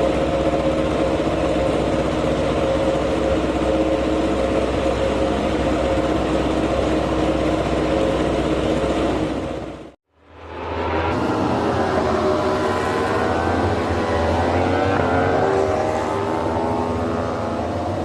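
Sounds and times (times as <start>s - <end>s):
racing motorcycle engine running: 10.4s - 18.0s.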